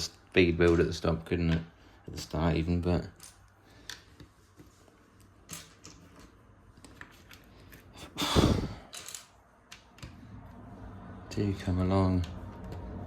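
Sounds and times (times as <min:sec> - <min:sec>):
person breathing out: 0:07.9 - 0:08.9.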